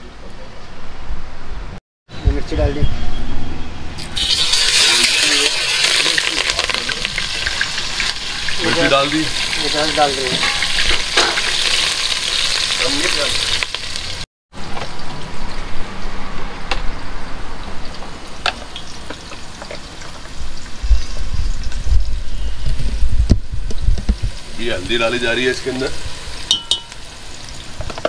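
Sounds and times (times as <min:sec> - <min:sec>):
food sizzling in oil: 0:04.0 - 0:14.3, 0:17.8 - 0:28.0
spoon clicking on pan: 0:26.5 - 0:27.0.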